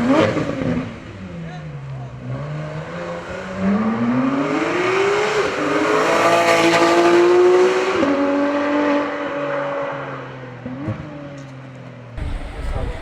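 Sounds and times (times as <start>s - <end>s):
car engine accelerating through gears: 2.2s - 11.0s.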